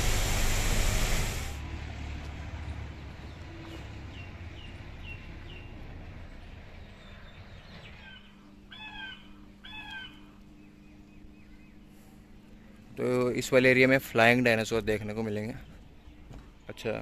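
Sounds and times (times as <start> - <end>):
low steady hum: 0.0 - 17.0
harsh bird calls: 7.3 - 12.8.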